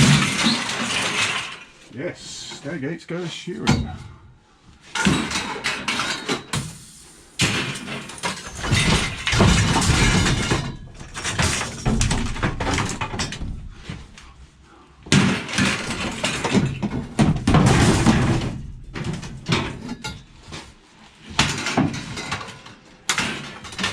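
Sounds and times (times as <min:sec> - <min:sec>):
scrap metal clattering: 0:05.0 - 0:12.2.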